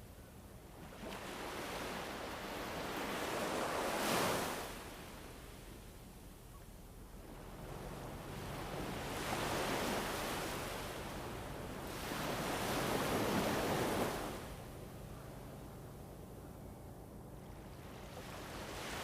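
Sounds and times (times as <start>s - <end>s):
wind gusts: 7.0s - 19.0s.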